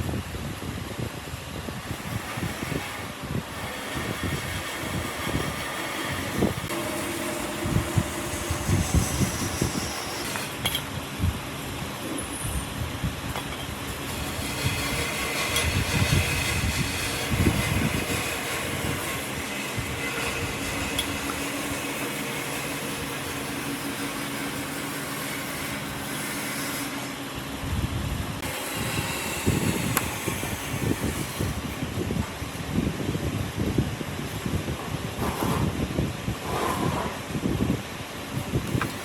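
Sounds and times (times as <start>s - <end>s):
wood lathe running: 1.8s - 10.6s, 14.0s - 27.1s, 28.4s - 31.6s.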